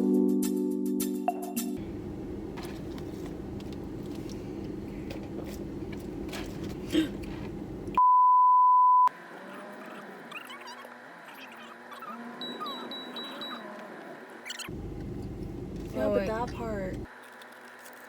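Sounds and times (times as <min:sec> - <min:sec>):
censor bleep: 0:08.0 - 0:09.1.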